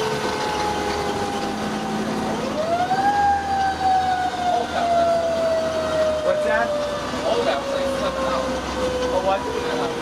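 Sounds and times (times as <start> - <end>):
fire engine siren wailing: 0.0 - 10.0
truck engine rumble: 0.0 - 10.0.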